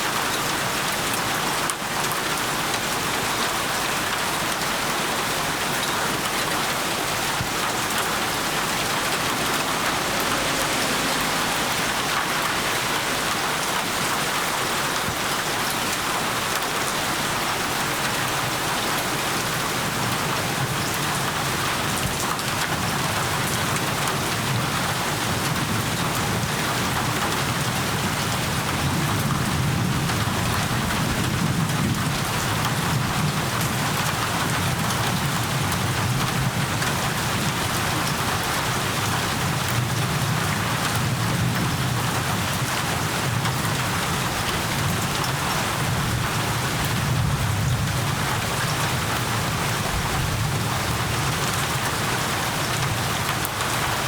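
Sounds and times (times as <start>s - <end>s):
steady rain falling: 0.0s - 54.0s
thunder rumbling: 4.4s - 15.8s.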